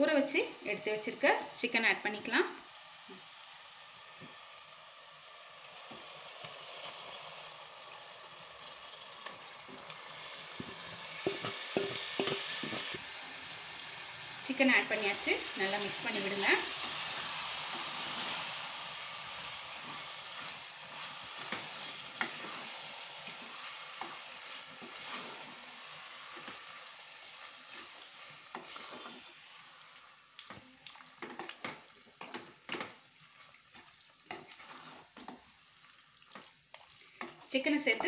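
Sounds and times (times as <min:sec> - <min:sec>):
chicken frying in oil: 0:00.0 - 0:38.0
spatula scraping metal pot: 0:27.7 - 0:29.3, 0:34.3 - 0:35.4.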